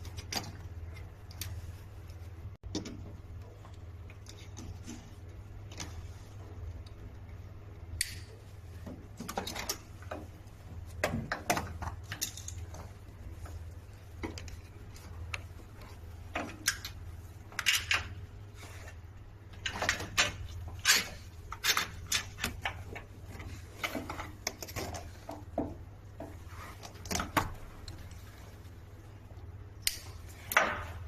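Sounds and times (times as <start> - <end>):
steady low hum: 0.0 - 31.0
tools and metal parts clanking: 10.9 - 13.0, 16.3 - 18.2.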